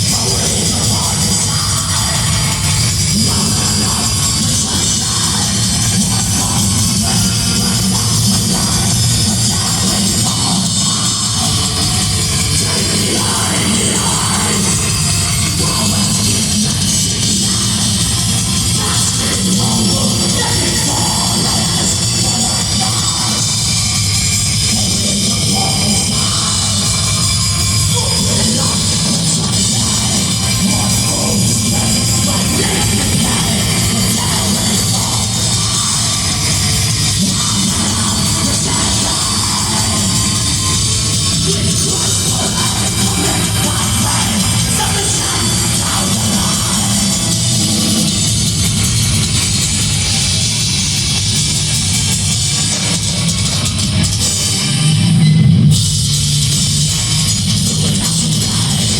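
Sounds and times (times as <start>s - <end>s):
heavy metal band playing live: 0.0s - 58.9s
shouted vocals: 27.8s - 48.2s.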